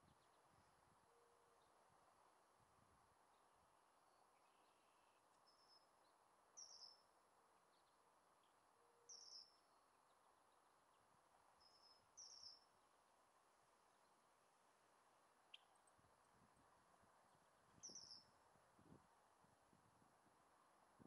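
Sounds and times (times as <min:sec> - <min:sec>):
faint outdoor hiss: 0:00.0 - 0:21.0
small bird chirping: 0:04.1 - 0:07.1, 0:07.7 - 0:11.0, 0:11.6 - 0:12.8, 0:15.4 - 0:16.0, 0:17.8 - 0:18.4.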